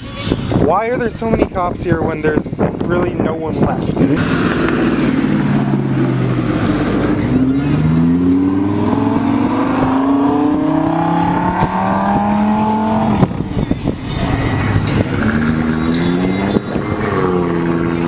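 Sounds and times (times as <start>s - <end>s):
car engine accelerating: 4.2s - 18.0s.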